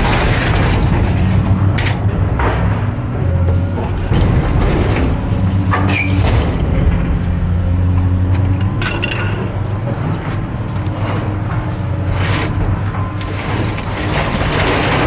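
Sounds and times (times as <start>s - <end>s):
metal clanks of appliances: 8.3s - 9.7s.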